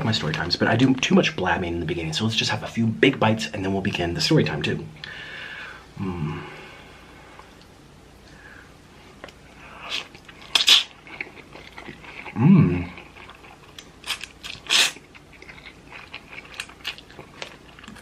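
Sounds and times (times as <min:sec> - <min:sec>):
chewing: 0:09.2 - 0:18.0.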